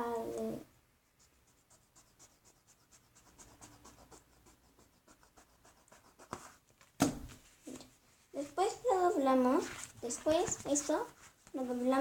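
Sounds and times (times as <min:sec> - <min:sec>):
rapid scratching on paper: 0:01.2 - 0:06.6
paper rustling: 0:09.4 - 0:12.0.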